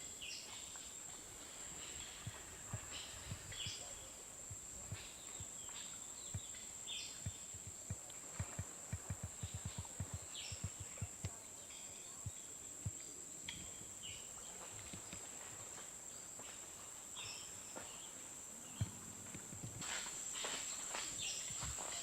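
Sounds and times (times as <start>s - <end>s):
soft low thumps: 6.2s - 11.4s.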